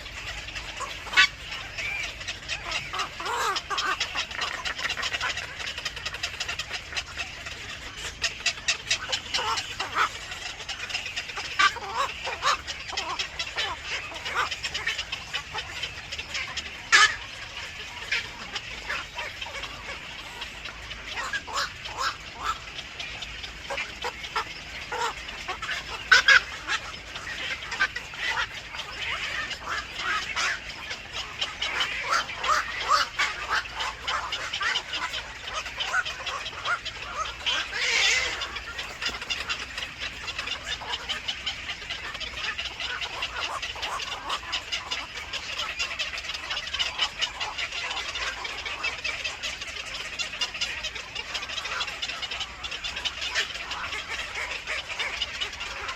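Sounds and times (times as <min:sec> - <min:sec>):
harsh bird call: 0:00.0 - 0:45.8
birds chirping: 0:00.0 - 0:55.9.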